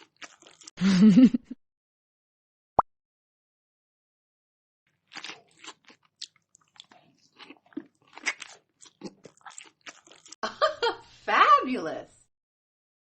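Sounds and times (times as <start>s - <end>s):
crunchy food chewing: 0.0s - 0.7s, 4.9s - 10.4s.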